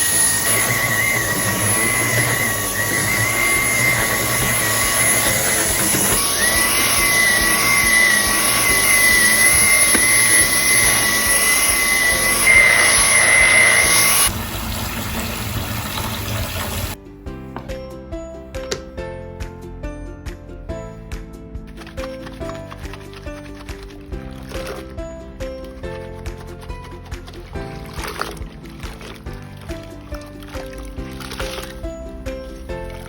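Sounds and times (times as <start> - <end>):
soft background music: 0.0 - 14.3, 16.9 - 33.0
vacuum cleaner running: 0.0 - 17.0.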